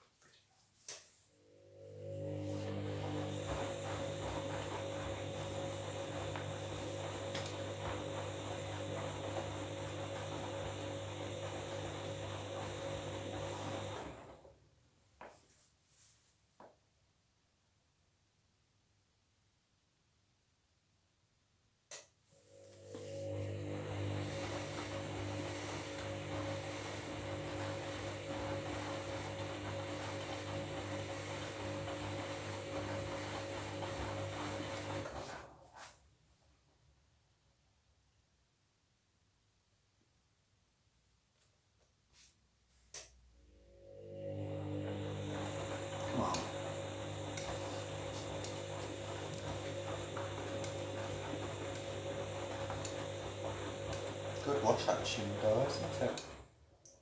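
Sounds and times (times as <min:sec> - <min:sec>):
washing machine motor hum: 0:01.4 - 0:14.6, 0:22.4 - 0:35.8, 0:43.4 - 0:57.0
washing machine drum turning: 0:44.8 - 0:56.4.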